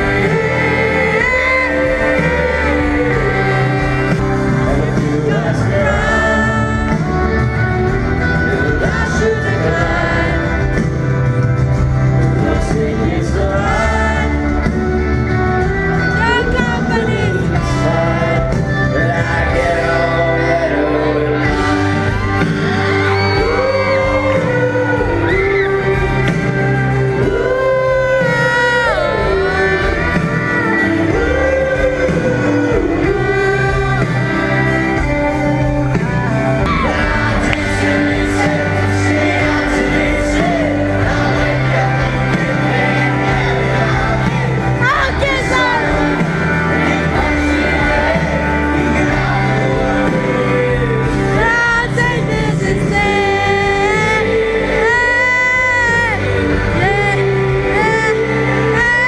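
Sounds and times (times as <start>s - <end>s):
crowd shouting: 0.0s - 59.0s
live pop-rock band playing: 0.0s - 59.0s
person singing: 0.0s - 59.0s.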